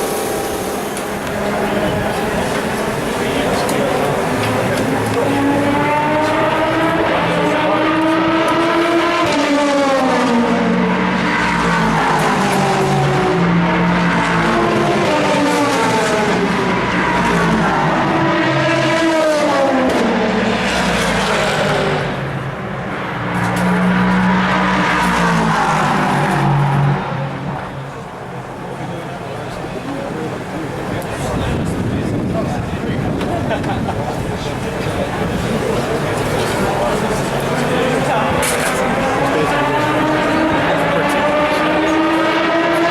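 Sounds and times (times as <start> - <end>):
race car engines revving: 0.0 - 42.9.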